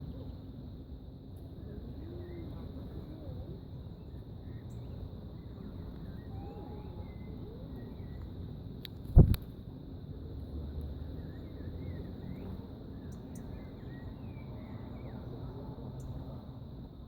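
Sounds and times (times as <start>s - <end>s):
faint bird chirps: 1.6s - 8.4s, 10.9s - 16.4s.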